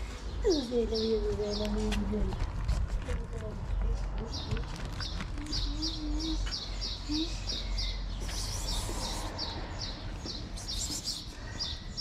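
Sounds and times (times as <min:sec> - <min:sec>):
small bird chirping: 0:03.7 - 0:12.0.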